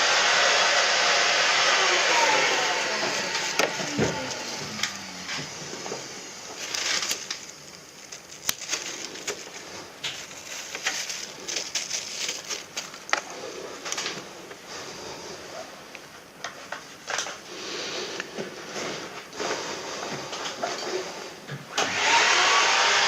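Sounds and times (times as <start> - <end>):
motor winding down: 0.0 - 7.5, 21.8 - 23.0.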